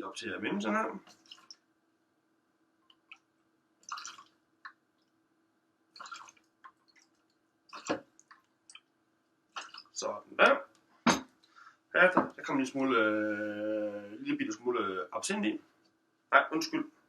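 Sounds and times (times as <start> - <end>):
liquid pouring into cocktail shaker: 3.8 - 4.3, 6.0 - 7.2.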